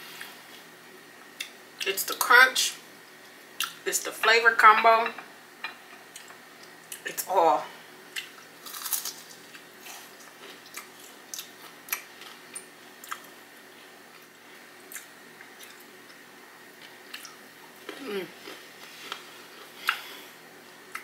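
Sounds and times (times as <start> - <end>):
crunchy food being chewed: 8.1 - 13.4, 14.1 - 20.1.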